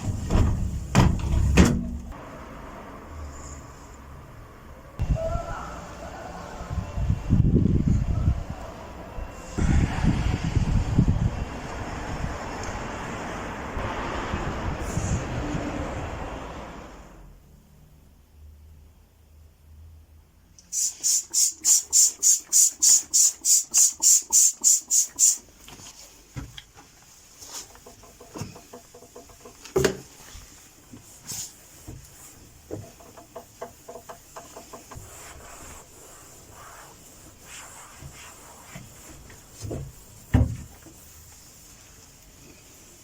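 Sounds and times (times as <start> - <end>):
trigger spray bottle squirting: 20.6 - 25.4
cloth wiping: 20.8 - 43.0
knocks of things being moved: 25.6 - 30.4.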